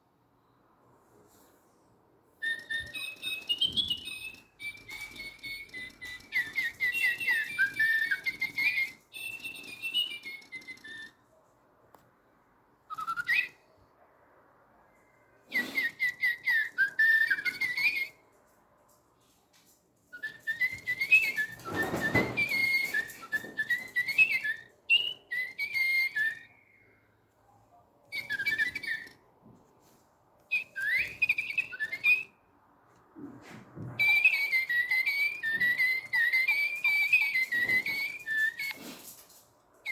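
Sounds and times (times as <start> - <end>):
toy birds chirping: 2.4 - 11.2, 13.0 - 13.6, 15.6 - 18.2, 20.2 - 26.6, 28.1 - 29.2, 30.5 - 32.3, 34.0 - 39.0.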